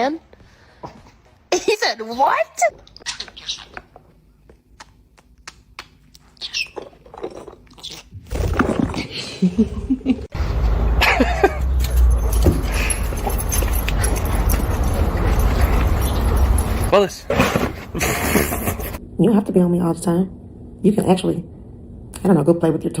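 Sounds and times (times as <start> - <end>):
dog chewing: 11.8 - 16.9
steady low rumble: 18.9 - 23.0.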